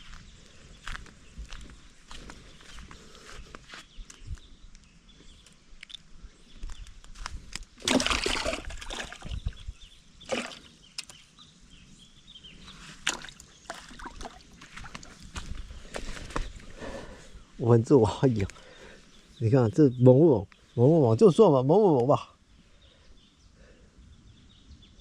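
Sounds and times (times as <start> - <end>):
water sloshing and splashing: 7.8 - 9.6, 10.2 - 11.2, 13.0 - 15.2.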